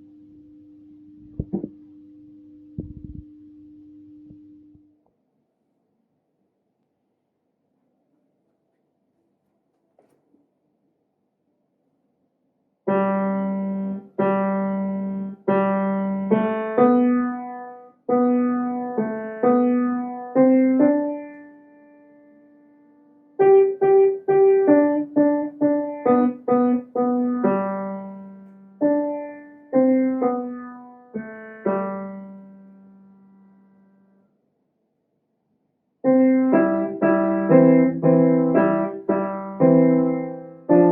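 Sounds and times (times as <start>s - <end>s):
slow piano playing: 12.9s - 33.9s, 36.0s - 40.9s.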